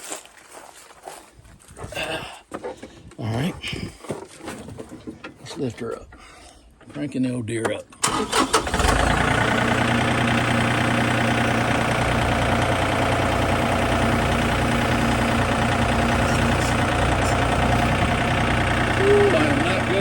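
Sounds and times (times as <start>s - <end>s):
tractor engine starting and running: 2.3s - 20.0s
short engine knocks: 13.6s - 19.0s.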